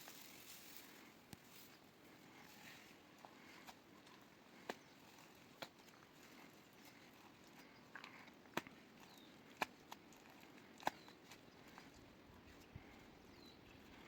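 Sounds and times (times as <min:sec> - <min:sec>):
faint steady hiss: 0:00.0 - 0:03.1.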